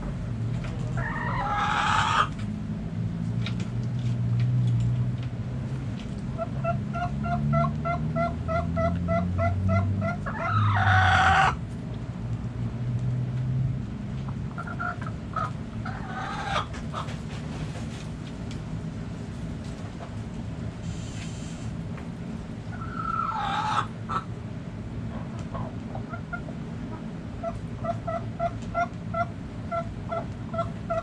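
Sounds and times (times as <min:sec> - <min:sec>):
chickens clucking: 0:00.0 - 0:02.4, 0:06.4 - 0:11.6, 0:14.3 - 0:18.0, 0:22.7 - 0:24.3, 0:25.0 - 0:31.0
loud harsh chicken call: 0:01.0 - 0:02.3, 0:07.2 - 0:11.6, 0:22.7 - 0:24.2.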